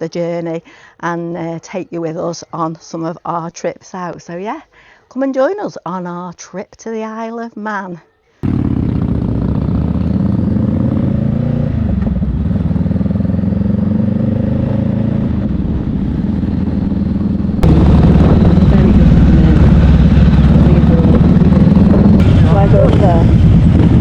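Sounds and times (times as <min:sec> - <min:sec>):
motorcycle engine running: 0:08.4 - 0:24.0.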